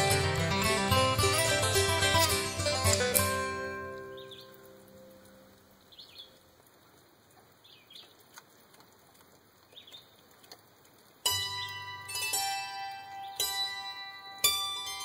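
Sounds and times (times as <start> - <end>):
plucked string music: 0.0 - 5.6, 11.2 - 15.0.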